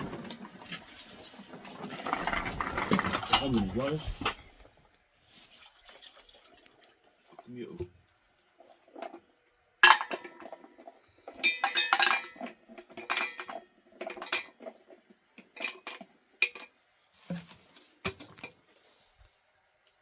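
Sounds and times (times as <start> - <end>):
metal dishes clinking and clattering: 0.0 - 4.7, 9.8 - 16.7.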